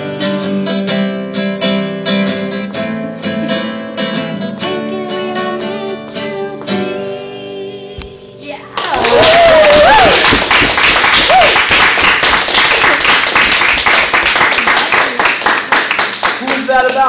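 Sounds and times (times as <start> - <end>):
acoustic guitar strumming: 0.0 - 8.7.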